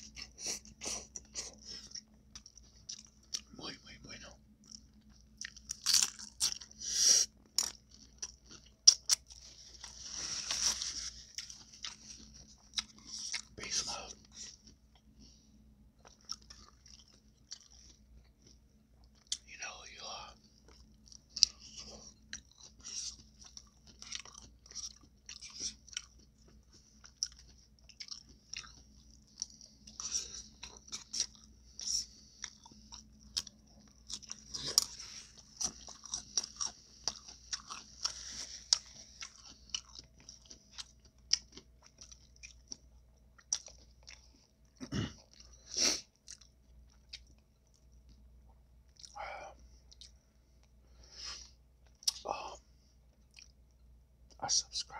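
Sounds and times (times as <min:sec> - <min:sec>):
crunchy chewing and biting: 0:04.6 - 0:15.1, 0:16.0 - 0:19.5, 0:20.5 - 0:48.2.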